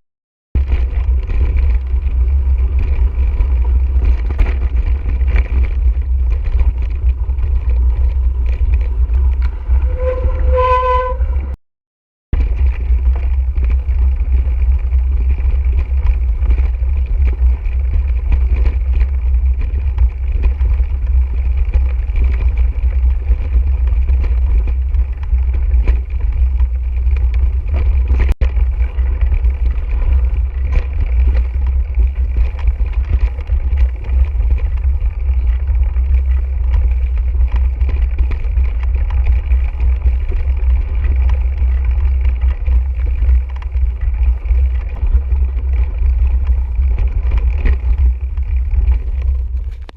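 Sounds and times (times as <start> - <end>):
bike clicks and rattles: 0.6 - 10.5, 12.4 - 49.9
wind buffeting microphone: 0.6 - 11.6.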